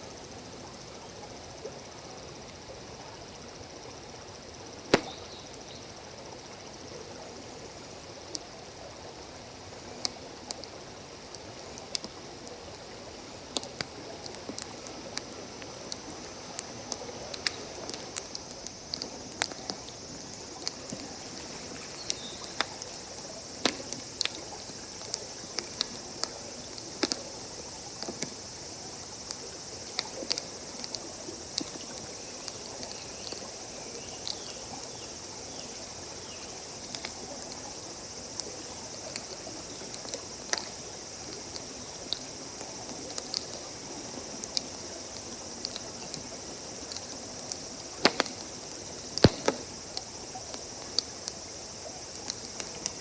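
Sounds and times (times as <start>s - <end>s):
insects chirring: 0.0s - 53.0s
campfire crackling and popping: 4.9s - 5.4s, 10.0s - 12.6s, 13.5s - 28.4s, 29.2s - 35.6s, 36.2s - 53.0s.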